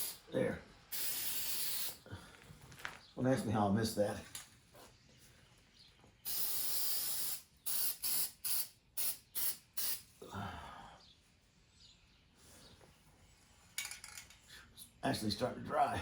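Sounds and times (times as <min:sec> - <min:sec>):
aerosol spray can hissing: 0:00.0 - 0:00.2, 0:00.9 - 0:02.0, 0:06.2 - 0:10.1.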